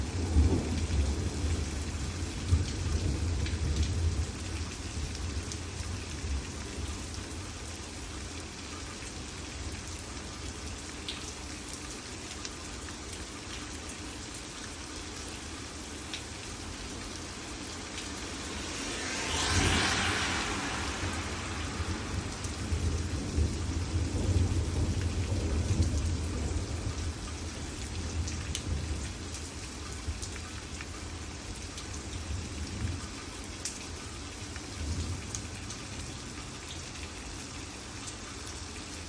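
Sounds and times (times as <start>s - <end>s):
raindrops ticking on a surface: 0.0s - 39.0s
steady rain falling: 0.0s - 39.0s
low rumble: 18.2s - 24.9s.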